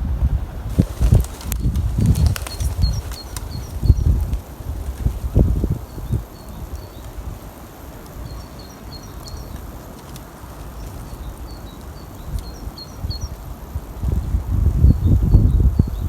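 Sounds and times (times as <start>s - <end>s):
small birds chirping: 0.7s - 13.6s.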